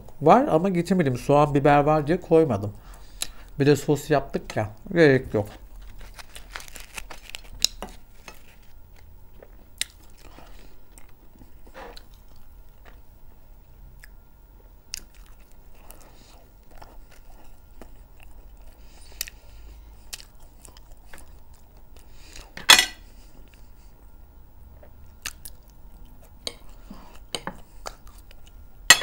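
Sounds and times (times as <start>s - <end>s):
person chewing food: 5.6s - 22.6s, 23.3s - 28.7s.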